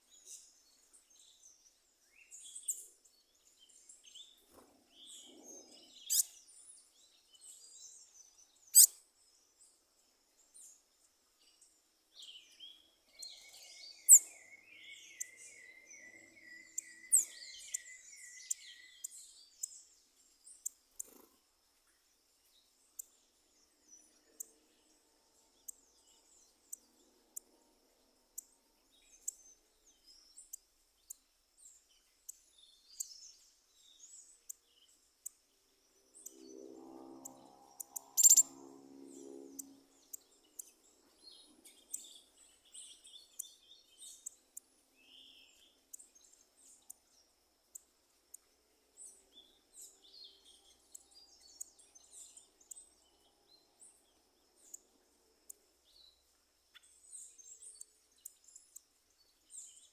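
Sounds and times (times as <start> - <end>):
birds chirping: 0.0 - 9.0, 11.4 - 21.4, 37.2 - 59.9.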